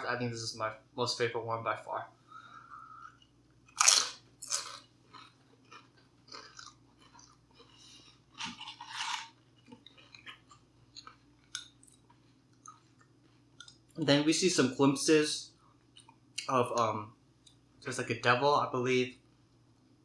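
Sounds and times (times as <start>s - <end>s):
person chewing crunchy food: 2.5s - 14.0s.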